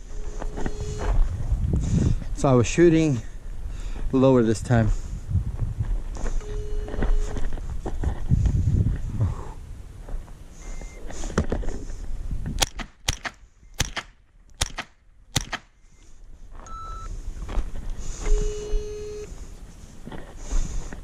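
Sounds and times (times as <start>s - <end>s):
short electronic tones: 0.0s - 1.3s, 6.3s - 7.4s, 10.6s - 11.0s, 16.6s - 17.1s, 18.2s - 19.3s
sharp gunshots: 12.6s - 15.8s.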